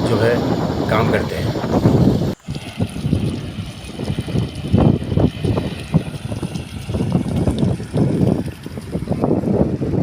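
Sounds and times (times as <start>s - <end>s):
tractor engine rumbling: 0.0s - 4.4s
wind buffeting microphone: 0.0s - 10.0s.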